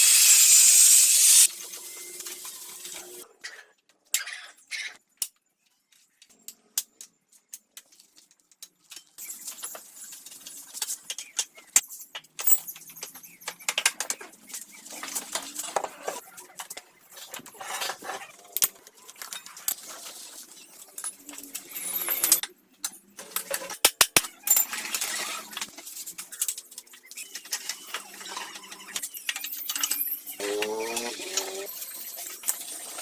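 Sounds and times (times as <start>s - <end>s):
hand tools clicking and scraping: 10.6s - 33.0s.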